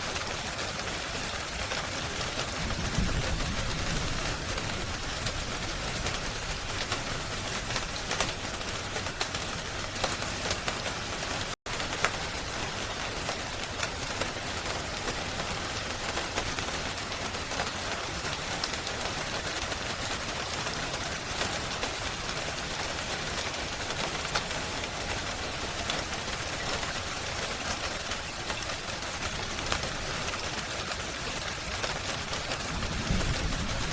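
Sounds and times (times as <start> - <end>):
steady rain: 0.0 - 33.9
wood fire crackling: 0.0 - 33.9.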